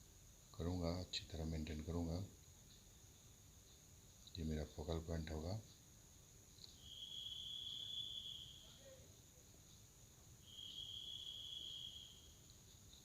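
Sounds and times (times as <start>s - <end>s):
faint hiss: 0.0s - 13.0s
insect trilling: 6.6s - 13.0s.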